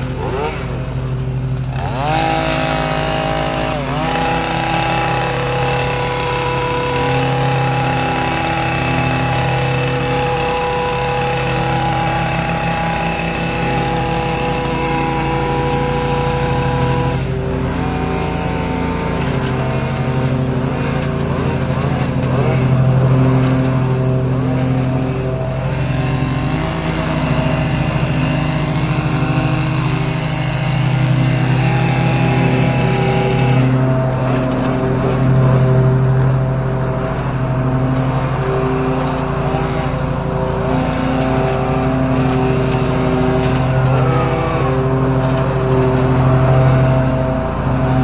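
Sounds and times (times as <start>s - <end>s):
hedge trimmer engine running: 0.0s - 48.0s.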